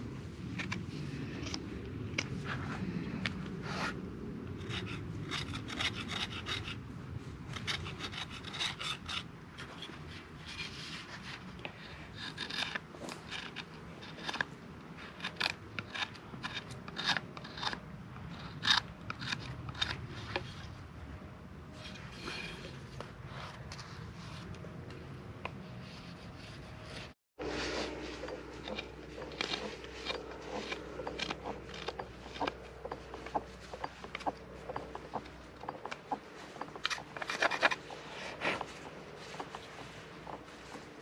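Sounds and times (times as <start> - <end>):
tool rasping wood: 4.6 - 6.8, 26.0 - 41.0.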